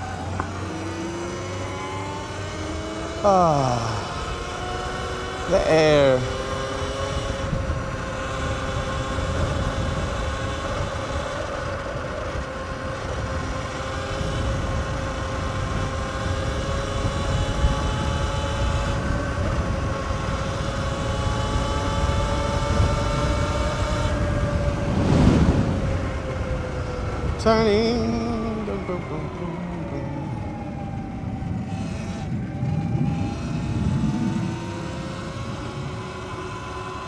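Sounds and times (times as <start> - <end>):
electric motor whine: 0.0 - 37.0
wind on microphone: 7.2 - 11.1, 16.6 - 36.1.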